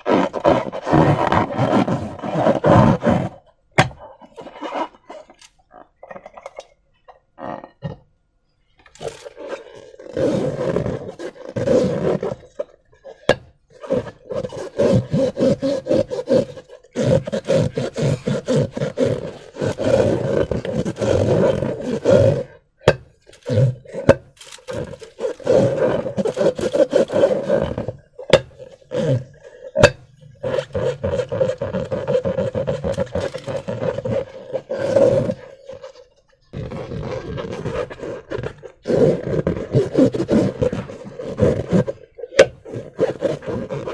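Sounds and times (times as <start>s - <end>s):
squeaky slime balloon squeezing: 0.0s - 8.1s, 8.9s - 43.9s.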